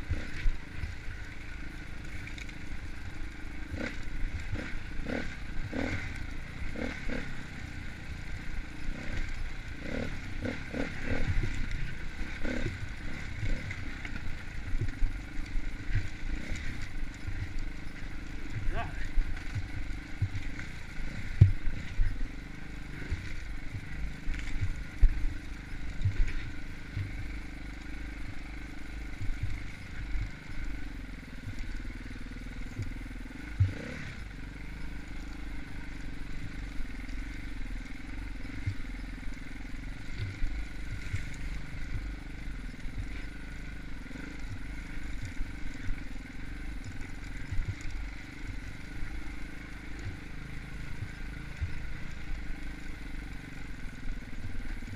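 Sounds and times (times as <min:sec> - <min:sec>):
dirt bike engine running: 0:00.0 - 0:54.9
low thumps and knocks: 0:21.3 - 0:22.0.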